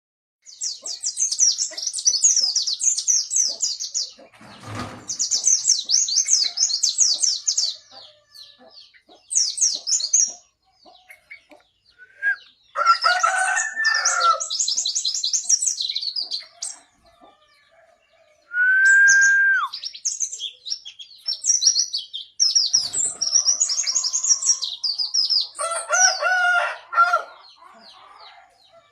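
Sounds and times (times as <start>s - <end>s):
chickens calling: 0.5s - 28.9s
bird twittering rapidly: 18.6s - 26.4s.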